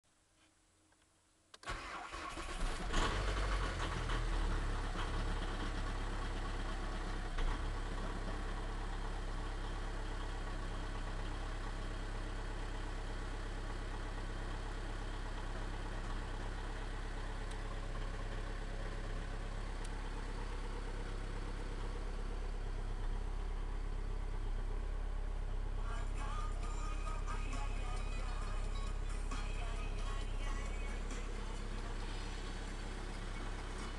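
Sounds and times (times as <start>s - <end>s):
diesel engine starting and idling: 1.6s - 33.9s.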